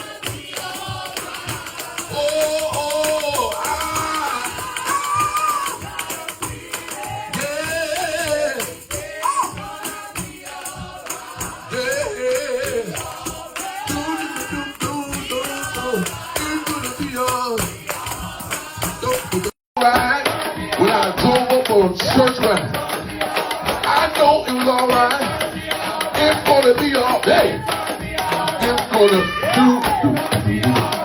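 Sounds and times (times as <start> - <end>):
gospel singing voices: 0.0 - 31.0
tambourine shaking: 0.0 - 31.0.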